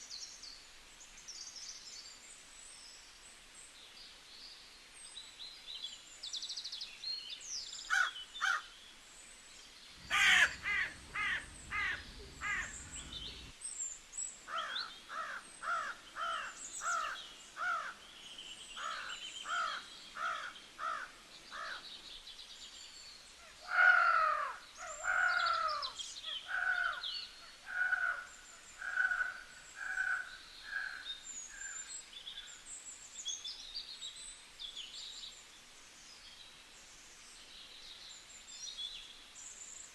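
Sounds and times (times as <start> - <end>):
small birds chirping: 9.7 - 23.4
bird giving harsh calls: 10.0 - 13.5.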